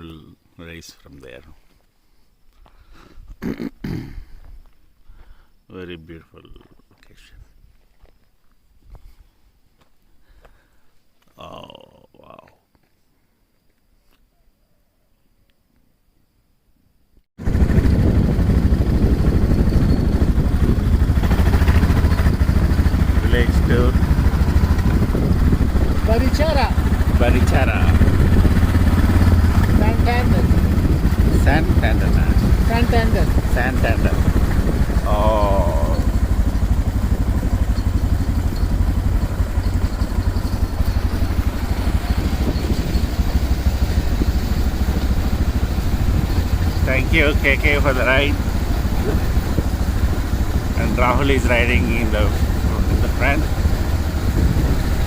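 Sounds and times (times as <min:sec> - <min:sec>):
motorcycle engine rumble: 0:17.4 - 0:55.0
wind noise on microphone: 0:17.4 - 0:55.0.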